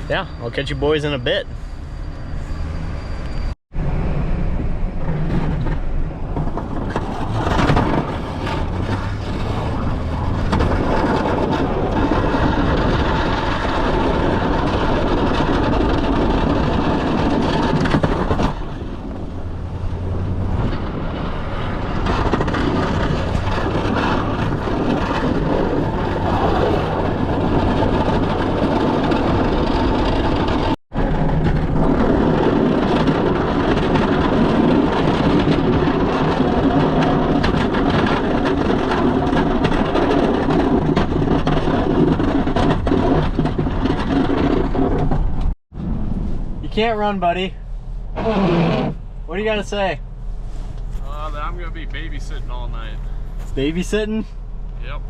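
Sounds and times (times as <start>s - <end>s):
snow-clearing machine engine: 6.6s - 45.0s, 50.4s - 53.8s.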